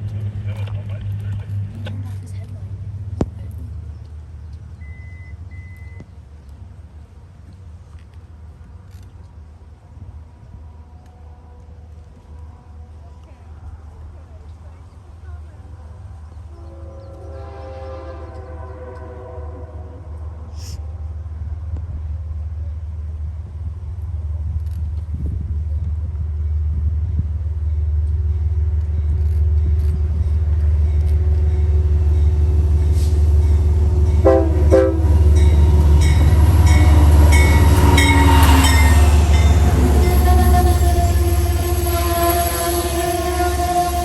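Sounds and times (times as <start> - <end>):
diesel locomotive rumbling: 0.0 - 44.0
multi-note train horn: 16.5 - 20.6, 33.0 - 44.0.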